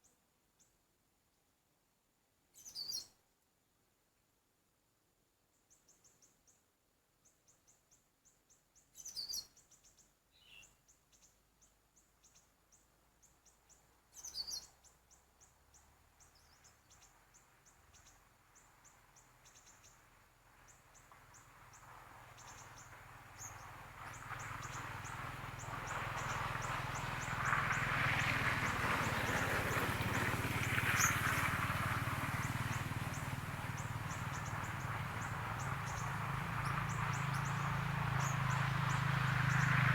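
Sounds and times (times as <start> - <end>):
small bird chirping: 2.5 - 3.1, 8.8 - 12.5, 13.3 - 18.2.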